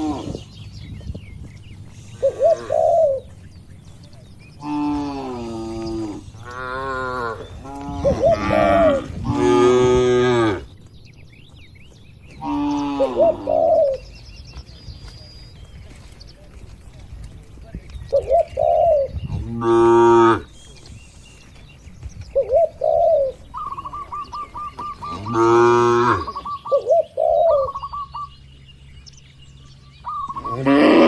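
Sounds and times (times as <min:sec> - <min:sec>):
dove cooing: 0:02.2 - 0:03.4, 0:04.6 - 0:10.7, 0:12.4 - 0:14.2, 0:18.1 - 0:20.4, 0:22.3 - 0:28.3, 0:30.0 - 0:31.0
cattle mooing: 0:04.6 - 0:10.7, 0:25.1 - 0:26.4, 0:30.4 - 0:31.0.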